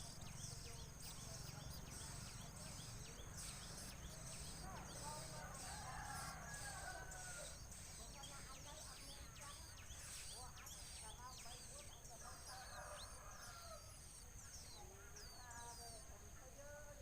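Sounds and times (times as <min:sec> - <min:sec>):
small birds chirping: 0:00.0 - 0:17.0
steady high hiss: 0:00.0 - 0:17.0
rooster crowing: 0:05.2 - 0:07.6, 0:12.4 - 0:14.0.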